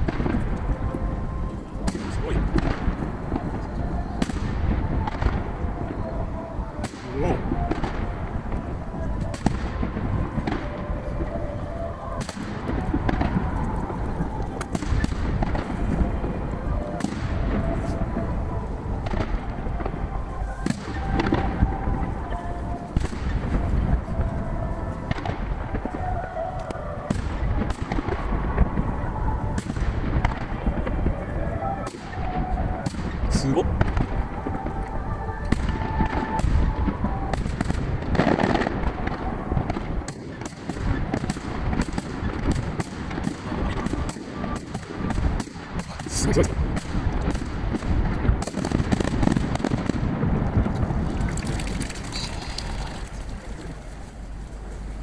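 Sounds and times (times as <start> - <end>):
distant fireworks bursting: 0.0 - 55.0
sharp firework cracks: 12.2 - 16.2, 31.8 - 55.0.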